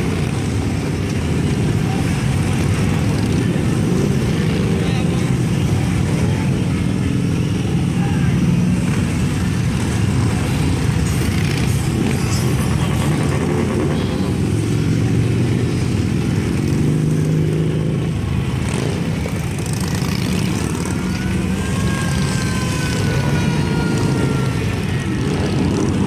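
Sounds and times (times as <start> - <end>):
motorcycle engines rumbling: 0.0 - 26.0.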